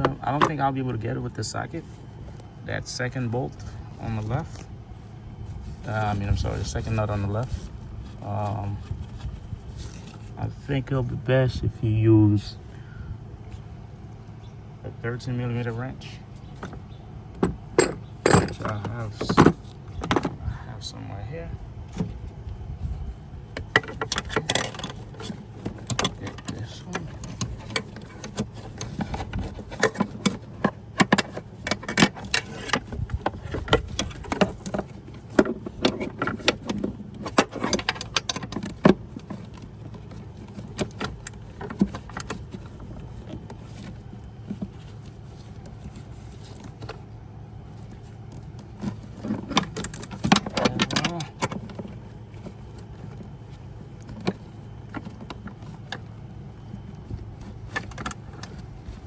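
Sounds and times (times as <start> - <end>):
steady low hum: 0.0 - 59.0
metal hand tools clinking: 17.8 - 18.8.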